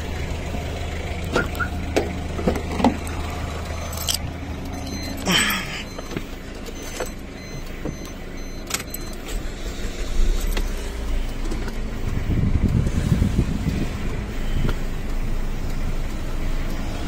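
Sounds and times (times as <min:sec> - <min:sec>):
car engine starting and running: 0:00.0 - 0:17.0
ignition key clicks: 0:03.8 - 0:09.5.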